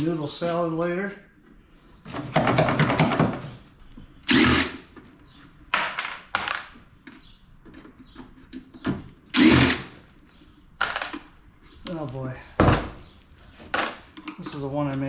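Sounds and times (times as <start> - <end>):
power drill running: 4.2 - 5.0, 9.4 - 10.0.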